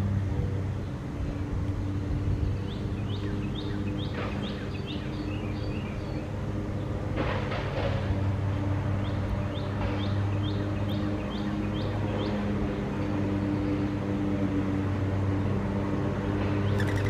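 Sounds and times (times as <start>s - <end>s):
low mechanical hum: 0.0s - 17.0s
songbird chirping: 16.6s - 17.0s.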